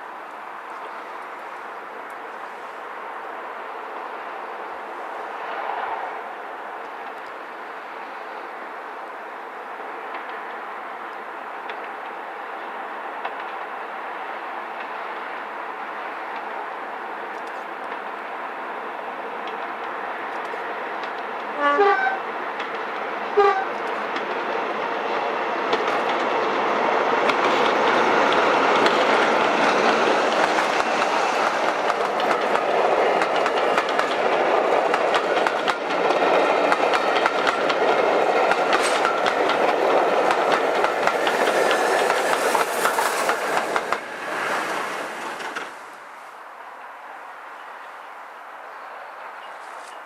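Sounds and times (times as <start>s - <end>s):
passenger train passing: 0.0s - 50.0s
train horn blast: 21.6s - 22.2s, 23.4s - 23.8s
wheels clicking over rail joints: 25.7s - 46.2s.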